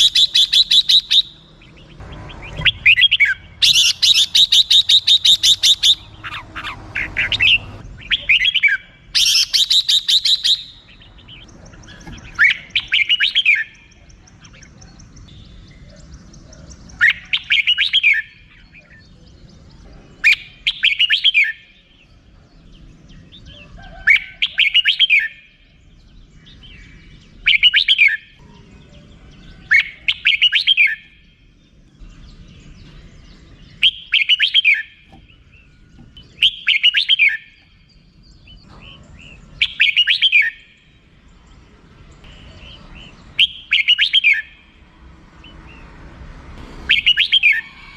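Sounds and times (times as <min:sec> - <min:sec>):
bird call phrases: 0:00.0 - 0:46.0, 0:46.7 - 0:47.9
bird chattering rattle: 0:02.3 - 0:10.8.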